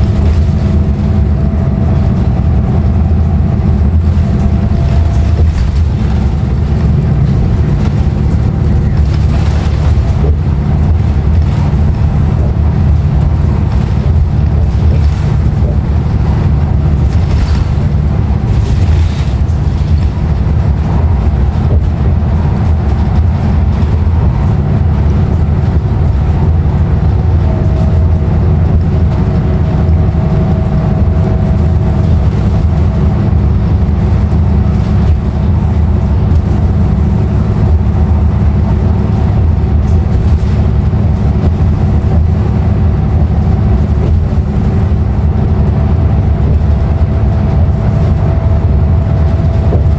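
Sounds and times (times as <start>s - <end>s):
bus diesel engine rumble: 0.0s - 49.9s.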